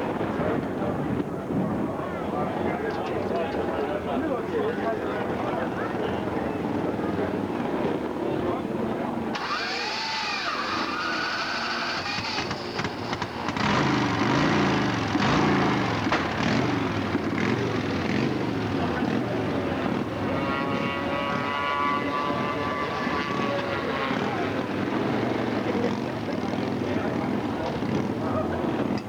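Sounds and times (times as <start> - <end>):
racing motorcycle engines revving: 9.2 - 29.0.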